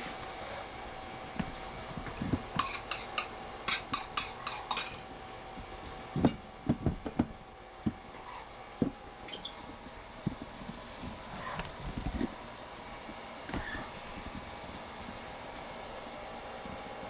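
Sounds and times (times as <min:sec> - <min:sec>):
dull knocks: 0:06.2 - 0:08.0.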